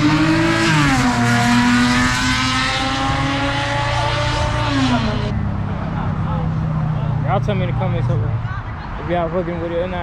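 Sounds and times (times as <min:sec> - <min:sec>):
car engine revving: 0:00.0 - 0:08.4.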